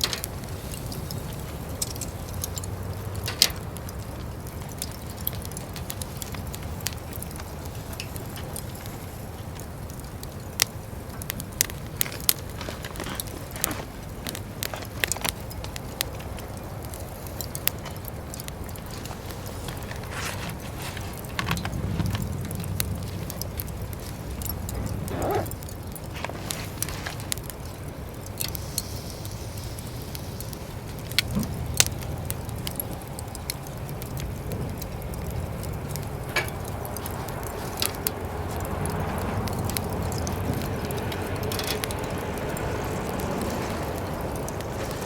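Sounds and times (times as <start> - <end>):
metallic clinks of barbecue gear: 0.0 - 44.9
steady low rumble: 18.2 - 28.2.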